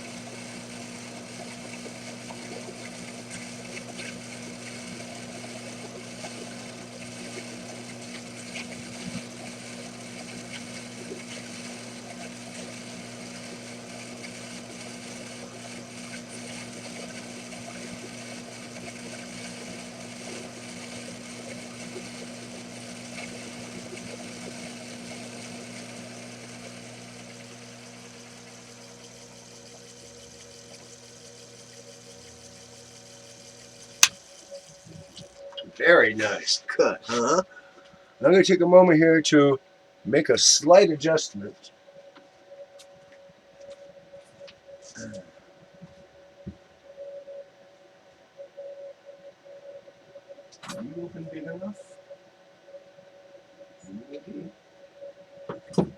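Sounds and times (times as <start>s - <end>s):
metal lathe cutting: 0.0s - 35.2s.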